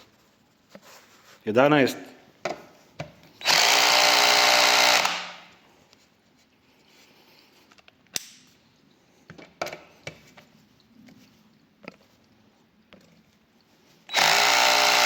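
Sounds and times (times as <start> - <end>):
cordless drill driving screw: 3.4 - 5.4, 14.1 - 15.0.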